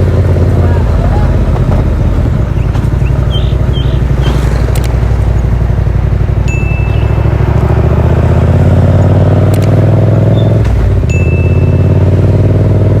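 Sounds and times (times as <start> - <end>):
motorcycle engine accelerating: 0.0 - 13.0
short high tone: 6.5 - 7.2.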